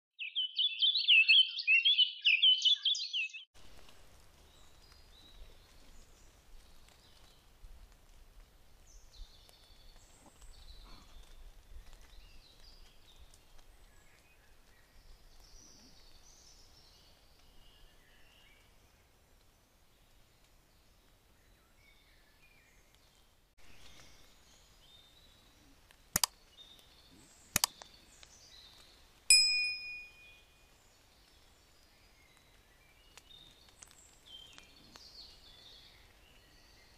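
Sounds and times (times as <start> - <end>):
warbling bird song: 0.2 - 3.5, 23.7 - 36.9.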